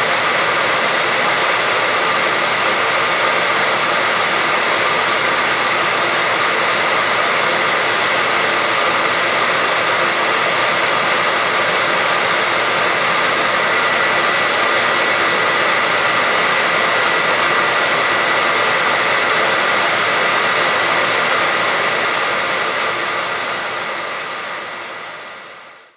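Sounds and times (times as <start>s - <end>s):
hair dryer running: 0.0s - 25.9s.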